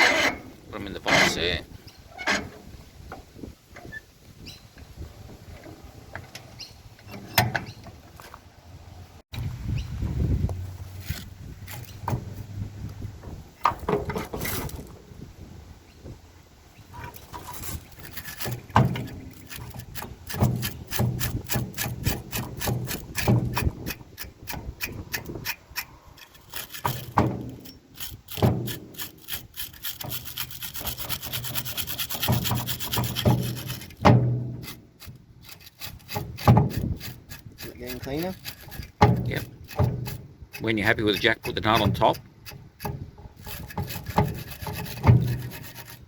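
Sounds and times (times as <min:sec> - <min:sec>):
wire brush scrubbing bolts: 0:00.0 - 0:04.0, 0:11.0 - 0:12.6, 0:17.0 - 0:46.0.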